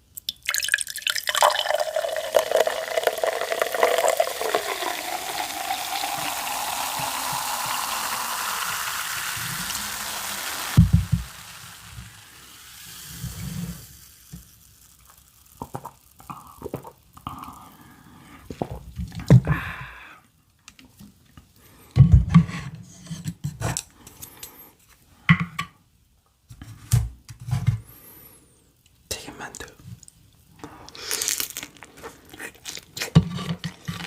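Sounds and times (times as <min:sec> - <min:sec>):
liquid dripping: 0:00.1 - 0:13.4
cup and bottle clicking: 0:00.2 - 0:08.8.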